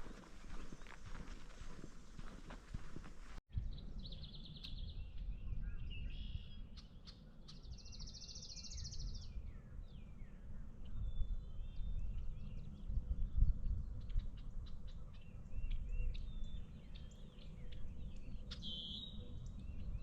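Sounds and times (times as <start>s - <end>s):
bird trills: 15.6s - 19.5s.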